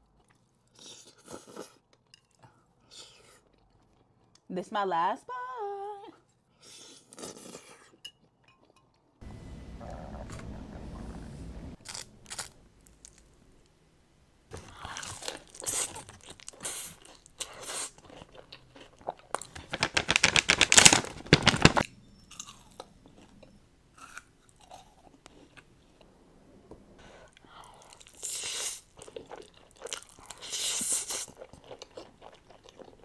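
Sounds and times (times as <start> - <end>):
crunchy food chewed: 0.0 - 4.5, 11.8 - 13.4, 14.5 - 20.9, 21.6 - 26.1, 27.2 - 33.0.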